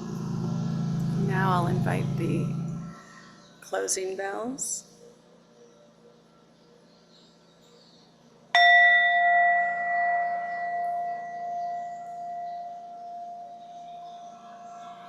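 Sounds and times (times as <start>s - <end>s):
meditation bell ringing: 8.6s - 15.0s.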